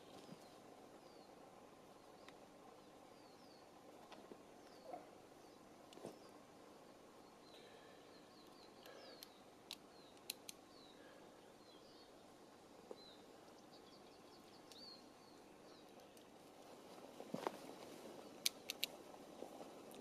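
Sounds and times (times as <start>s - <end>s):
small bird chirping: 7.2s - 16.4s
sharp little clicks: 8.4s - 10.7s, 18.4s - 19.0s.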